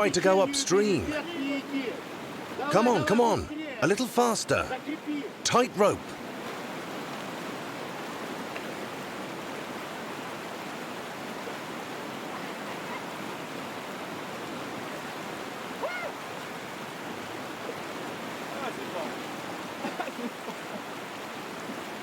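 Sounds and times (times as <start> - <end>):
glacial torrent rushing: 0.0 - 19.9
person shouting: 2.7 - 4.7.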